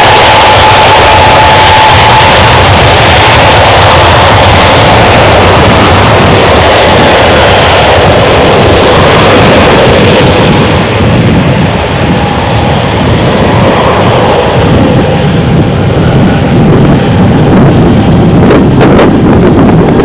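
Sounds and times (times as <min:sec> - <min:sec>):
jet engines roaring with whine: 0:00.0 - 0:20.0.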